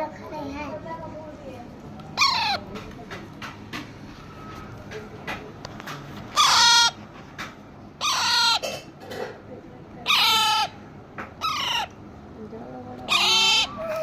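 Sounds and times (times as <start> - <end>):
parrot calling loudly: 2.1 - 2.7, 6.3 - 7.1, 8.0 - 8.9, 10.0 - 12.0, 13.1 - 14.0.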